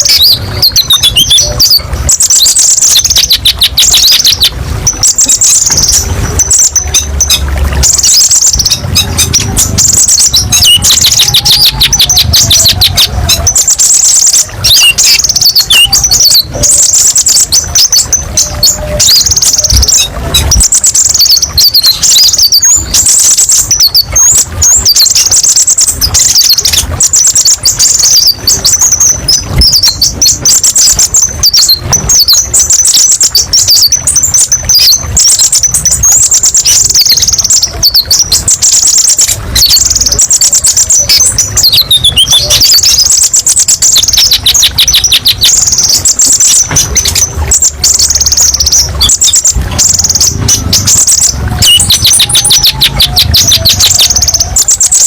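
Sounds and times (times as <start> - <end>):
sunbird twittering song: 0.0 - 55.0.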